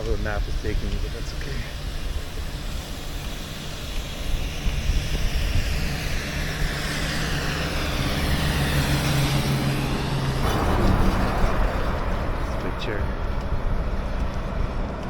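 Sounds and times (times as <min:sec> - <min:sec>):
vehicle passing: 0:06.4 - 0:15.0.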